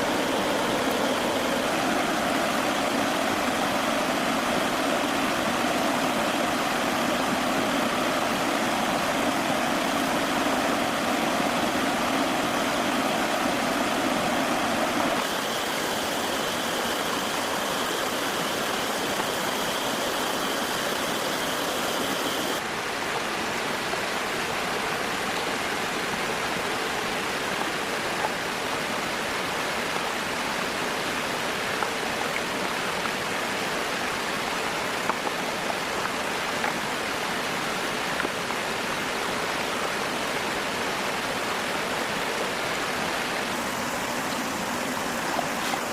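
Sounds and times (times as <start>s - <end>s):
steady rushing noise: 0.0s - 22.6s.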